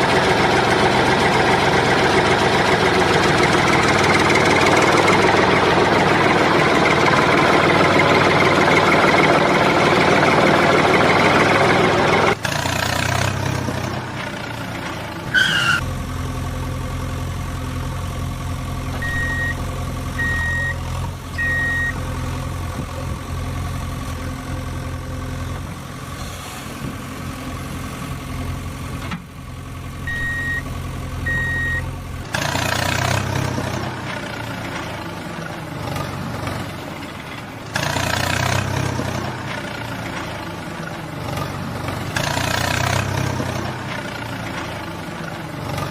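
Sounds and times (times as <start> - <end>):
short high beeps: 19.0 - 19.6, 30.1 - 30.6, 31.3 - 31.9.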